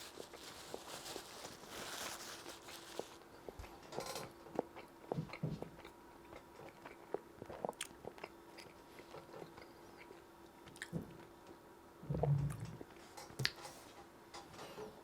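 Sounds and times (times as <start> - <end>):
person chewing: 0.0 - 11.0
faint steady hum: 0.0 - 15.0.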